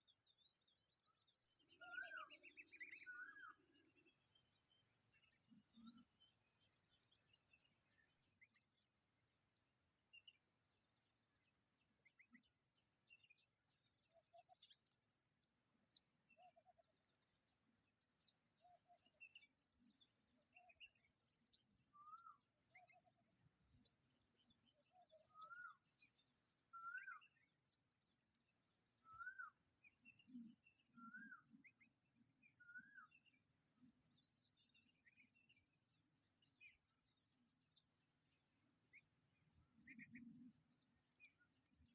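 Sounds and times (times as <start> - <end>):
thin bird chirps: 0.0 - 6.1, 18.6 - 27.8, 29.0 - 41.9
faint birds calling: 1.1 - 7.0, 24.8 - 27.4, 29.0 - 35.8, 36.4 - 41.9
high insect drone: 34.5 - 39.0.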